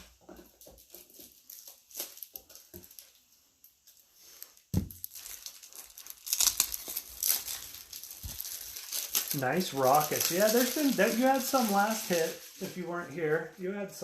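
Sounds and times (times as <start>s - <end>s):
card sleeves rustling: 5.1s - 13.4s.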